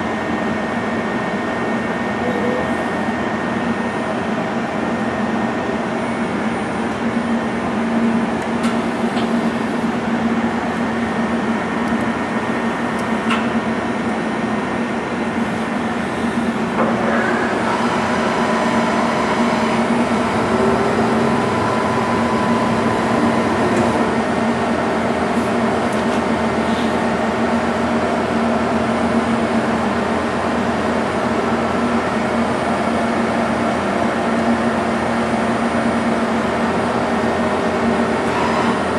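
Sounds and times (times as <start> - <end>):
lathe mechanical hum and whine: 0.0 - 38.9.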